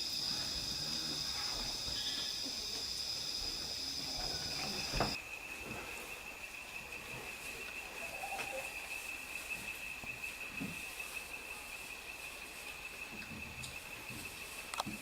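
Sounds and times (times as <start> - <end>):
insect trilling: 0.0 - 5.2, 6.0 - 12.3.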